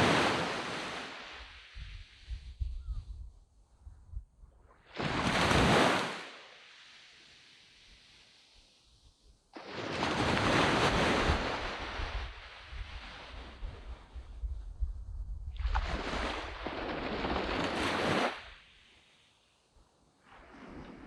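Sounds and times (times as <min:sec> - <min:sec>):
sea waves breaking on beach: 0:00.0 - 0:02.4, 0:04.8 - 0:08.9, 0:09.5 - 0:14.2, 0:15.6 - 0:21.0.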